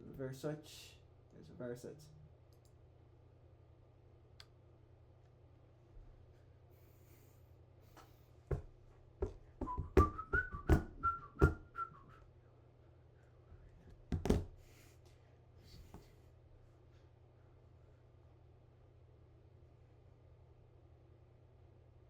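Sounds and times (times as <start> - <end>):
sharp knocks: 8.5 - 11.6
person whistling short notes: 9.6 - 12.2.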